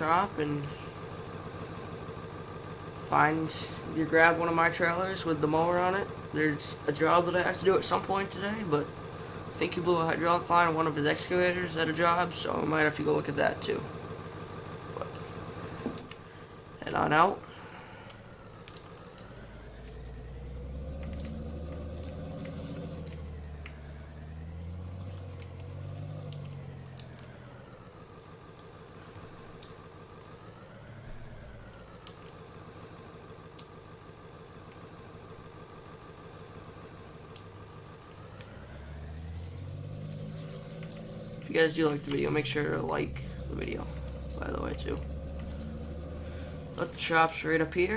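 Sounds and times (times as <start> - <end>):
vehicle engine running: 0.0 - 47.9
faint clicks: 18.0 - 20.3, 20.9 - 24.2, 25.0 - 27.4, 33.5 - 33.8, 37.3 - 37.6, 40.0 - 42.3, 43.3 - 47.0.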